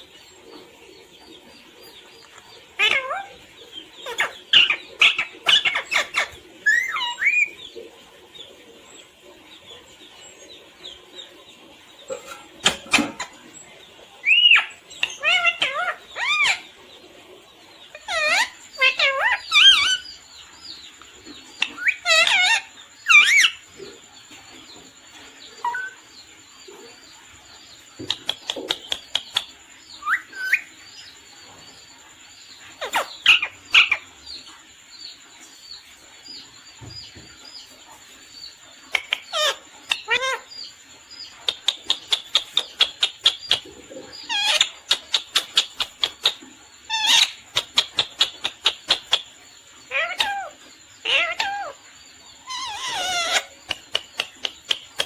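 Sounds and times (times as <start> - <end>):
parrot squawking and chirping: 2.7 - 7.6, 12.1 - 13.4, 14.2 - 16.8, 17.9 - 20.2, 21.6 - 23.6, 25.6 - 26.0, 28.1 - 30.7, 32.8 - 34.1, 38.9 - 40.7, 41.4 - 55.0.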